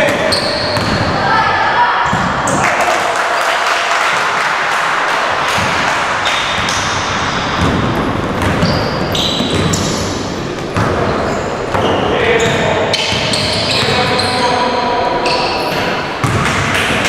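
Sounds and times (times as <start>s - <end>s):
basketball bouncing on court: 0.3s - 1.2s, 5.4s - 14.3s, 15.6s - 17.0s.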